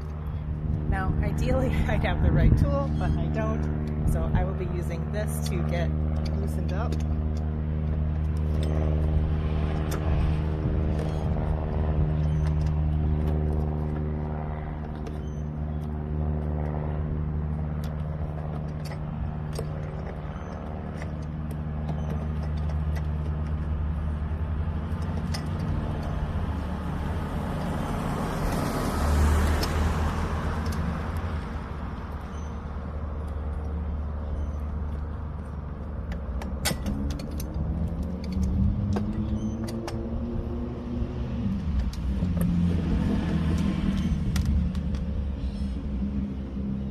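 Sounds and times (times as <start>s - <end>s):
vehicle engine humming: 0.0s - 46.9s
passing vehicle whoosh: 26.2s - 32.2s.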